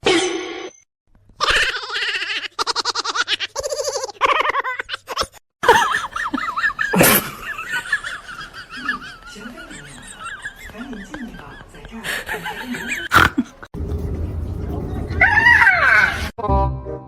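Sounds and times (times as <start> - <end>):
laughter: 3.0 - 13.7.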